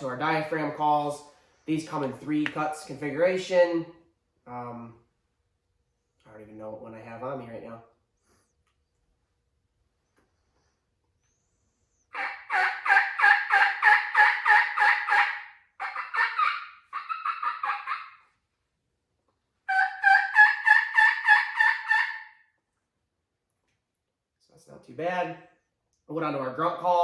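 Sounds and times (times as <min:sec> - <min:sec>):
turkey call yelps: 0:12.0 - 0:18.3, 0:19.7 - 0:22.5.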